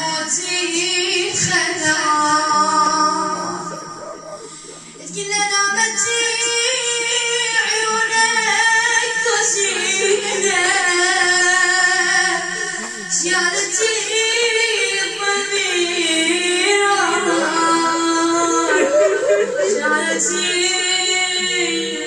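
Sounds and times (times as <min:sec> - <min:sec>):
person singing devotional chant: 0:00.0 - 0:22.0.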